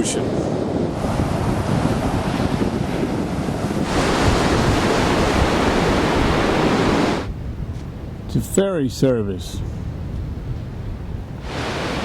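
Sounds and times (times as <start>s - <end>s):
ocean surf rushing: 0.0s - 7.3s, 11.4s - 12.0s
wind buffeting microphone: 0.0s - 12.0s.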